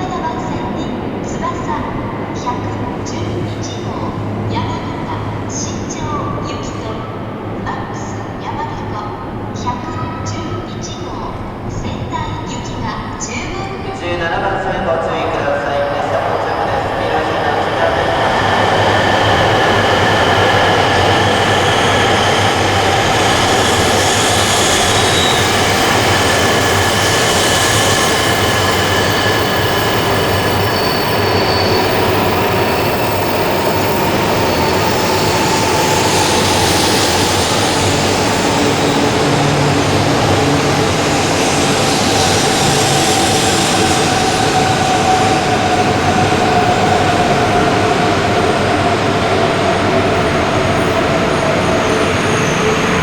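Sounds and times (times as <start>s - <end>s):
train rumble: 0.0s - 53.0s
wheel squeal: 18.4s - 37.5s.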